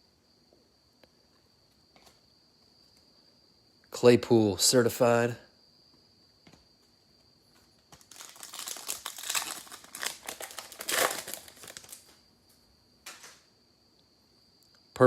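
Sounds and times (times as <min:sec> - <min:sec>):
card pack wrapper crinkling and tearing: 0:07.9 - 0:12.2.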